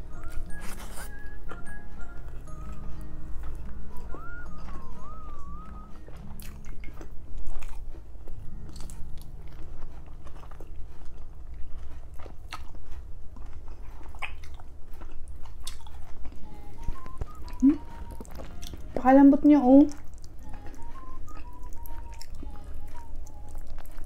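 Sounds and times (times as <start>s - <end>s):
person chewing food: 0.0s - 19.0s, 19.8s - 24.0s
soft mouth clicks and smacks: 14.1s - 14.7s.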